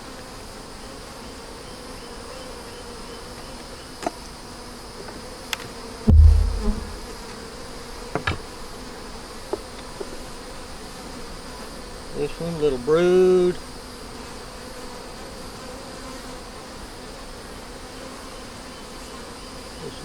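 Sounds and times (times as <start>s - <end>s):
bees buzzing: 4.8s - 8.0s
dull low thump: 6.1s - 7.2s.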